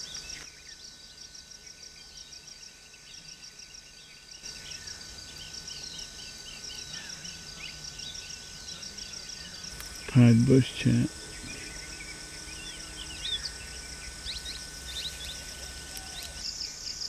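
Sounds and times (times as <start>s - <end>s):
birds chirping: 0.0s - 17.0s
insect trilling: 0.0s - 17.0s.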